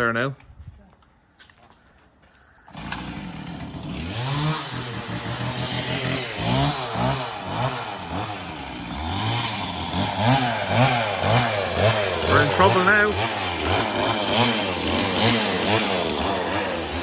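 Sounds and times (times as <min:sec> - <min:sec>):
starter motor cranking: 0:02.7 - 0:17.0
car engine revving: 0:04.0 - 0:17.0.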